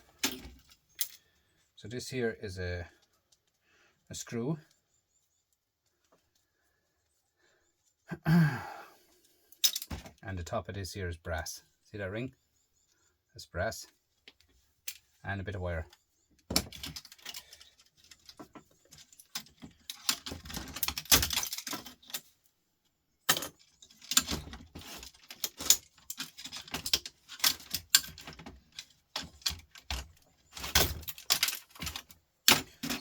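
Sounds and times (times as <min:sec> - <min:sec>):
metal parts and tools clinking: 0:00.0 - 0:01.3, 0:09.5 - 0:10.2, 0:15.8 - 0:22.5, 0:23.2 - 0:33.0.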